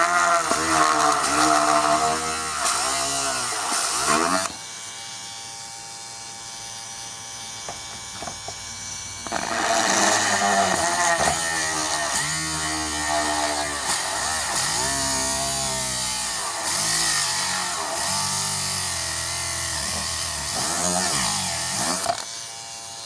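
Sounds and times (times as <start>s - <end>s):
mini drill whining: 0.0s - 23.0s.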